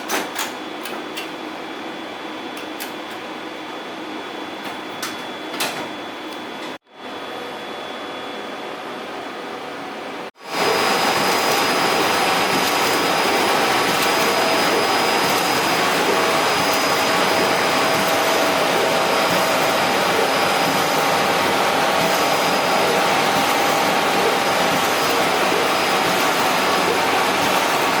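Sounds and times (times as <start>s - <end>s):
printer running: 10.4s - 28.0s.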